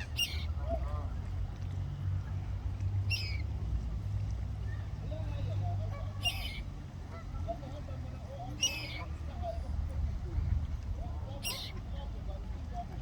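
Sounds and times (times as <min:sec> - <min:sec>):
moorhen sharp call: 0:00.0 - 0:00.5, 0:03.1 - 0:03.4, 0:06.2 - 0:06.6, 0:08.6 - 0:09.0, 0:11.4 - 0:11.8.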